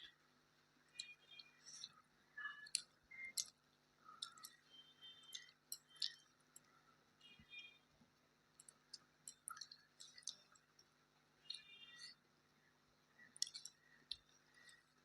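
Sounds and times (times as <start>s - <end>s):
person chewing food: 0.9s - 6.8s, 8.5s - 12.2s, 13.1s - 15.0s.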